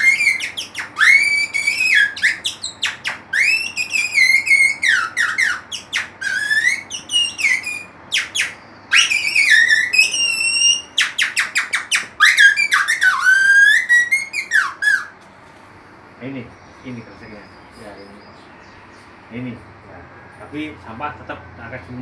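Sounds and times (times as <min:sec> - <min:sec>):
plastic reed whistle bird-call chirps: 0:00.0 - 0:15.2.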